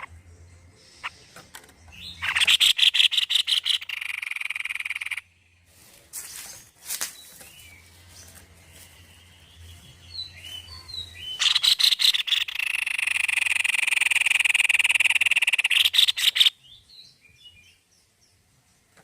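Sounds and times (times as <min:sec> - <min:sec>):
rapid rattling bird trill: 0:00.0 - 0:00.2, 0:00.9 - 0:05.4, 0:10.0 - 0:16.6
faint bird chirps: 0:00.0 - 0:17.9.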